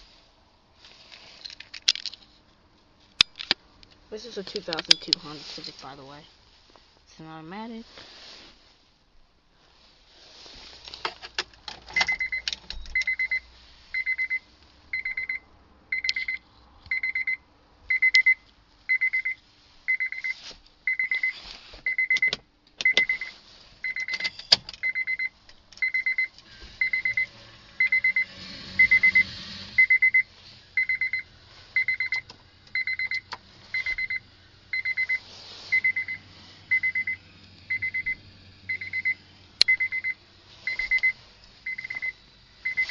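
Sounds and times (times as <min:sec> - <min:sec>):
handling clicks and rattles: 0:01.3 - 0:02.3
car warning beeper: 0:11.9 - 0:42.9.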